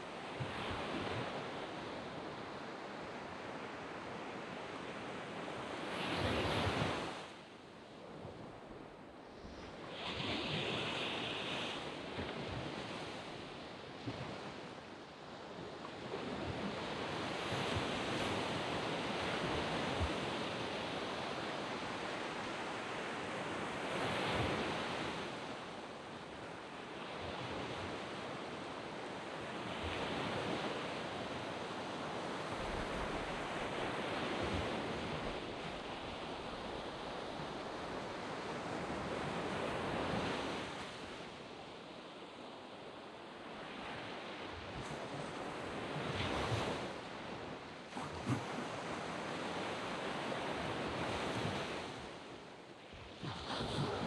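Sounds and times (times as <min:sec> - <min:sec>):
sea waves breaking on beach: 0:43.7 - 0:54.0.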